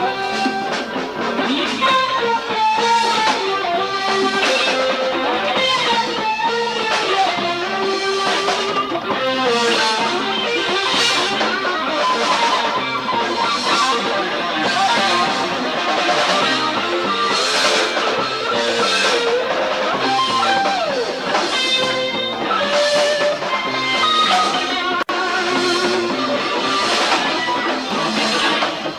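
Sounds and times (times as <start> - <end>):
drums: 0.0 - 28.9
electric guitar lead with bent notes: 0.0 - 28.9.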